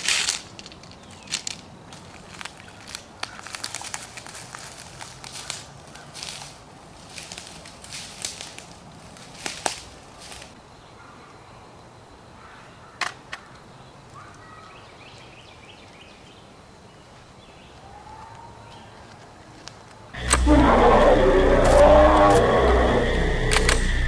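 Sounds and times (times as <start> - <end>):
crackling snaps: 20.2 - 24.0.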